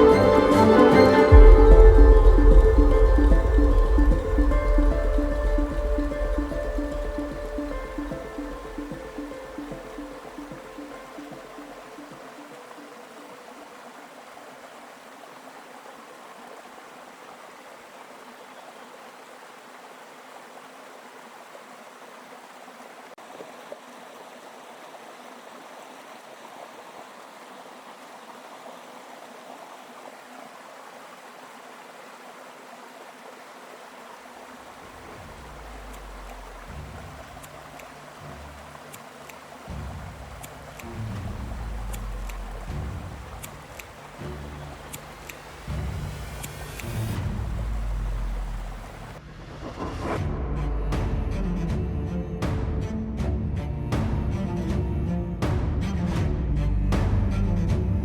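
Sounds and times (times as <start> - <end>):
low music: 0.0 - 12.0, 39.7 - 58.0
river water rushing: 0.0 - 50.0.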